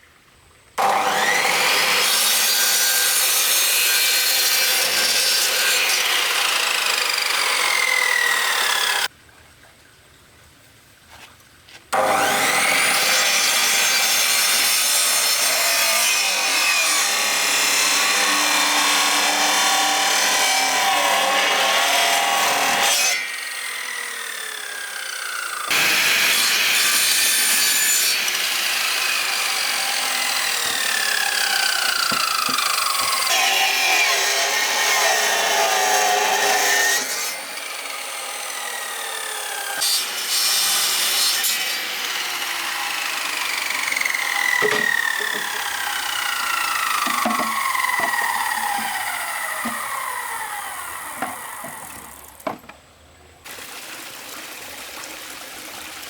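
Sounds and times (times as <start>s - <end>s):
power saw cutting: 0.8s - 9.1s, 11.9s - 52.6s.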